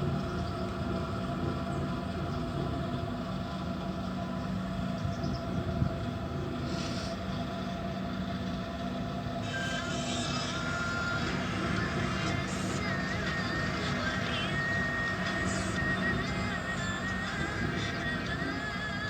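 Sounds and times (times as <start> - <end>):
compaction machine engine drone: 0.0 - 19.0.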